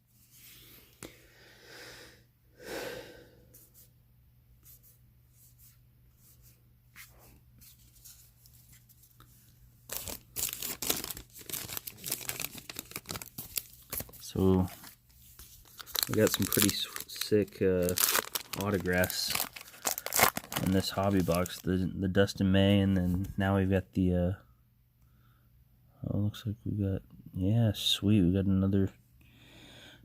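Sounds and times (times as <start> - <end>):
foil wrapper tearing and crinkling: 9.9 - 14.9, 15.6 - 21.6.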